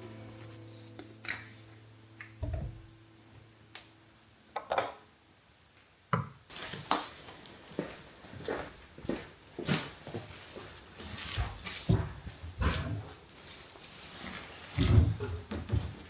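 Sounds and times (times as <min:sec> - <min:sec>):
low steady hum: 0:00.0 - 0:05.6
dull thump: 0:02.4 - 0:02.8.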